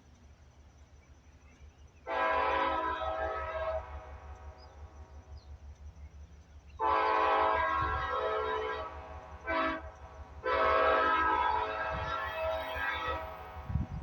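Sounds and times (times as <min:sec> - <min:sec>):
train rumbling: 0:00.0 - 0:14.0
locomotive air horn blasts: 0:02.0 - 0:05.0, 0:06.8 - 0:14.0.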